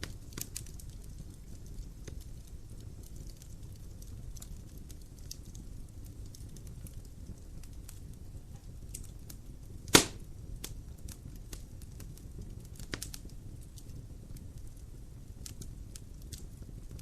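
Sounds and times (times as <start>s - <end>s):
low fire rumble: 0.0s - 17.0s
wood fire crackling: 0.0s - 17.0s
loud sharp pop: 9.9s - 10.2s.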